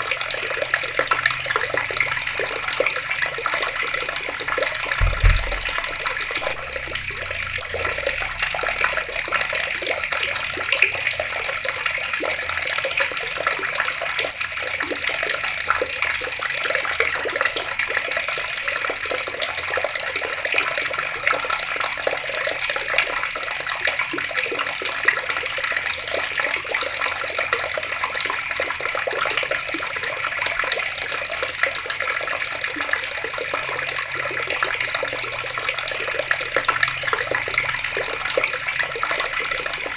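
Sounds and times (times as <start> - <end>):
water tap running: 0.0 - 12.5.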